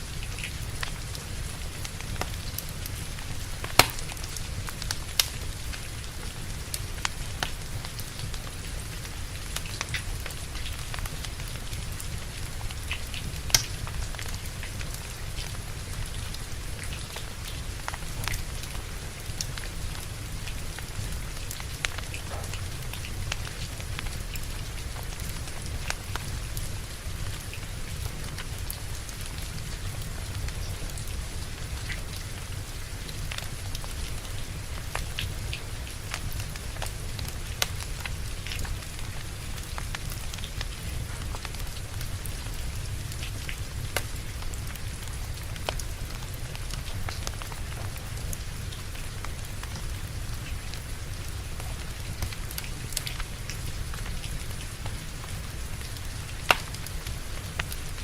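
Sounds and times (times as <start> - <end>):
steady rain falling: 0.0 - 58.0
wood fire crackling and popping: 0.0 - 58.0.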